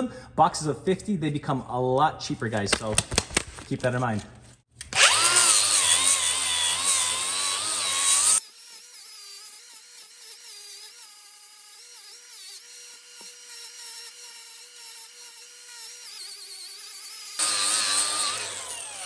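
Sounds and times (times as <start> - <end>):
angle grinder whining: 4.8 - 19.0.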